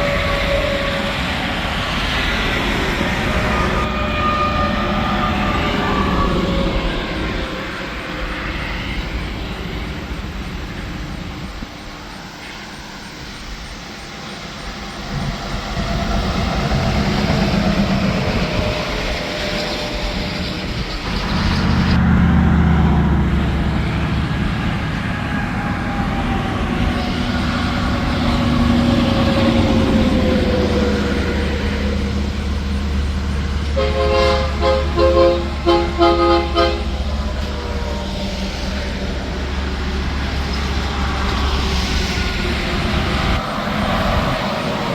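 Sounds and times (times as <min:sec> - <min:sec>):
trucks and traffic passing: 0:13.1 - 0:44.9
truck air horn blasts: 0:33.7 - 0:37.1.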